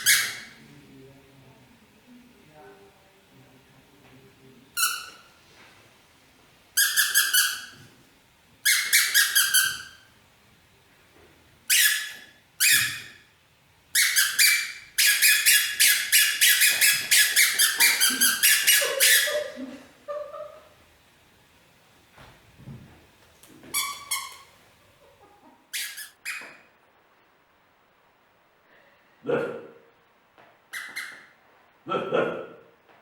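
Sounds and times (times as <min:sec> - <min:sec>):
toy rubber squeaker squeaks: 0:00.0 - 0:00.6, 0:06.8 - 0:07.7, 0:08.7 - 0:10.0, 0:11.7 - 0:13.2, 0:14.0 - 0:19.3, 0:23.7 - 0:24.5, 0:25.7 - 0:26.6, 0:30.8 - 0:31.2.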